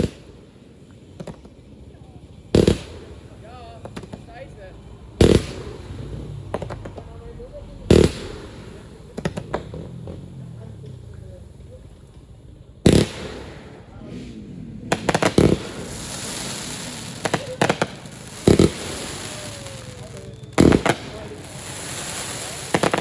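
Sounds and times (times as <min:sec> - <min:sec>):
firework shells bursting: 0:00.0 - 0:07.3, 0:07.9 - 0:23.0
continuous firework crackle: 0:00.0 - 0:23.0.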